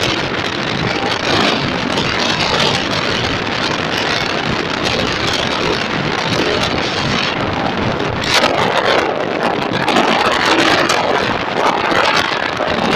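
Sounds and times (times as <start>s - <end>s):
train roaring past: 0.0s - 9.2s
wheel clacks: 0.0s - 12.9s.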